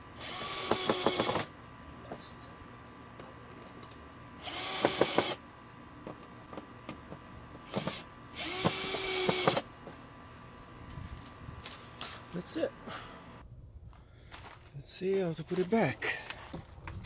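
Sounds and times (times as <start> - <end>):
power drill running: 0.2 - 1.5, 4.4 - 5.4, 7.6 - 9.8.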